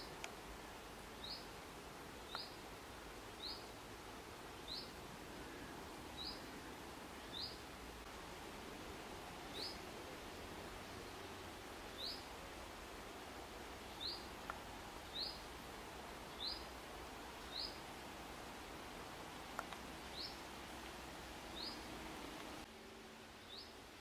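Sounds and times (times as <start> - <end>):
steady outdoor hiss: 0.0 - 24.0
small bird chirping: 2.2 - 2.6, 7.2 - 7.6, 9.5 - 9.8, 12.0 - 12.3, 13.9 - 14.4, 15.1 - 15.5, 16.3 - 16.7, 17.4 - 17.8, 19.6 - 20.4, 21.5 - 21.9.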